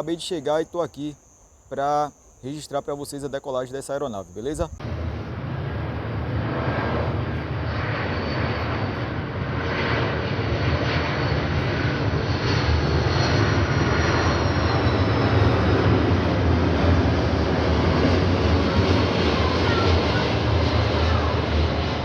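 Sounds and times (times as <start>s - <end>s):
jet engines roaring: 4.7s - 22.0s.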